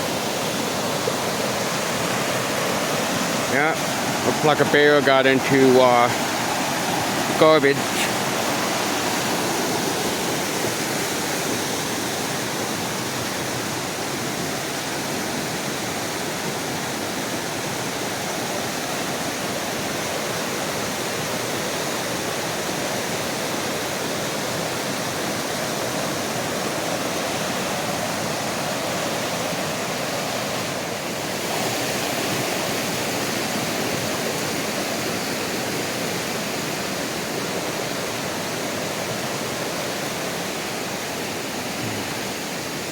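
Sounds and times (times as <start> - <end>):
creek rushing water roar: 0.0 - 42.9.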